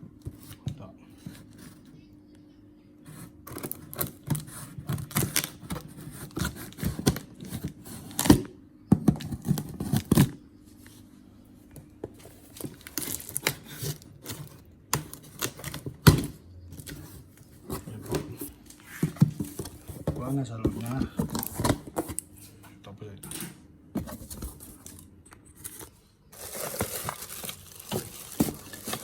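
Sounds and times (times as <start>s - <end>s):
cardboard scraping and crinkling: 3.1s - 11.0s, 12.1s - 16.0s, 16.8s - 22.5s, 24.0s - 25.0s, 25.6s - 29.0s.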